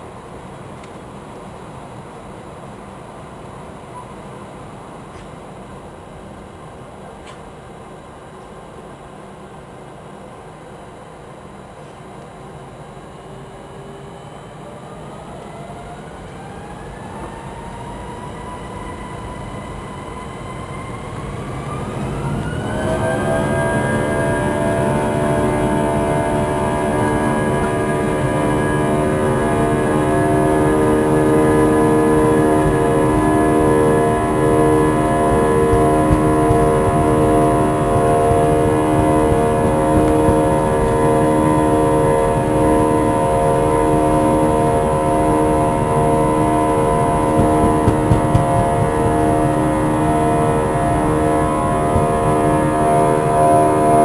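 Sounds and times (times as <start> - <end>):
jet engines spooling up: 12.6 - 54.0.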